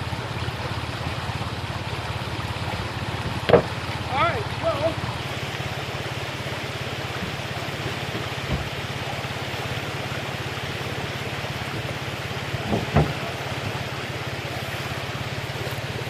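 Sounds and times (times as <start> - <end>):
river water rushing: 0.0 - 16.0
vehicle engine running: 0.0 - 16.0
dull knocks: 3.2 - 3.8, 7.2 - 8.9, 12.6 - 13.4.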